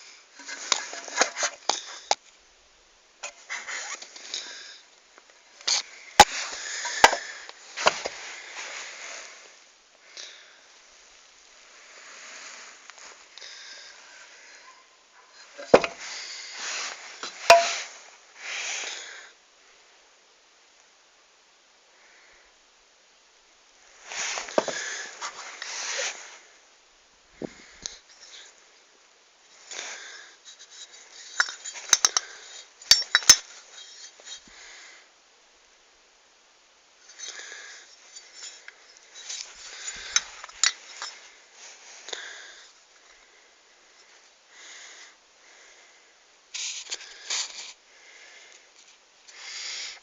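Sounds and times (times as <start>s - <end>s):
metal parts scraping and rustling: 0.4s - 2.2s, 5.6s - 9.3s, 15.3s - 18.0s, 24.0s - 26.4s, 29.6s - 34.5s, 37.0s - 41.8s, 46.5s - 47.8s
metal tools clinking: 15.4s - 16.1s, 17.2s - 17.9s, 30.6s - 34.4s, 37.1s - 41.2s.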